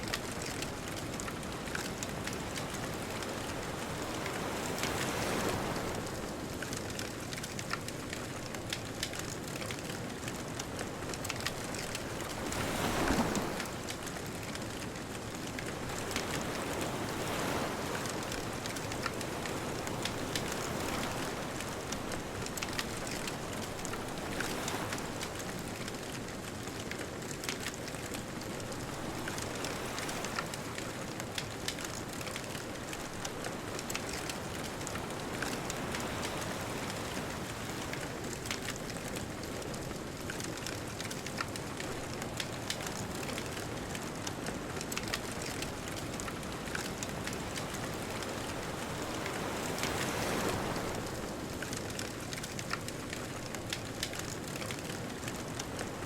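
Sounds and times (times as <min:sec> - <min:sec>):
bonfire crackling and popping: 0:00.1 - 0:03.5, 0:06.6 - 0:12.9, 0:13.5 - 0:17.6, 0:25.6 - 0:29.1, 0:35.2 - 0:48.0, 0:48.7 - 0:56.0
distant ocean surf: 0:11.2 - 0:14.5, 0:15.4 - 0:25.9, 0:27.5 - 0:52.8.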